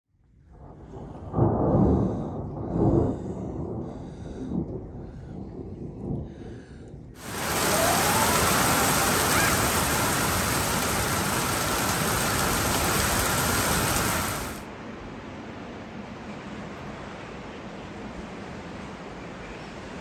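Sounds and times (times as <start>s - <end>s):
heavy rain downpour: 7.2s - 20.0s.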